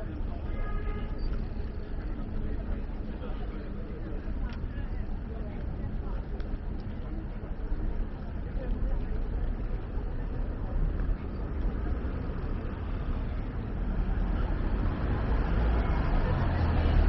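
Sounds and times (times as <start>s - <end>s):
road traffic going by: 9.3s - 17.0s.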